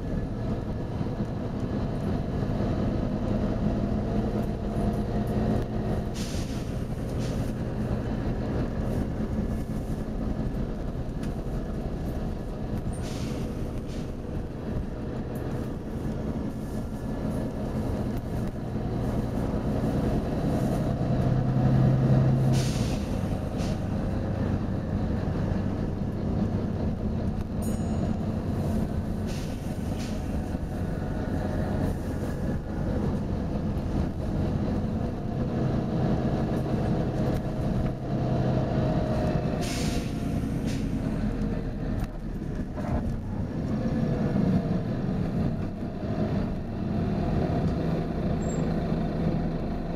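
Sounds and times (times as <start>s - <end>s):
bus diesel engine running: 0.0s - 49.9s
short air hisses: 6.2s - 7.5s, 13.0s - 14.2s, 22.4s - 23.8s, 29.2s - 30.3s, 39.6s - 41.1s.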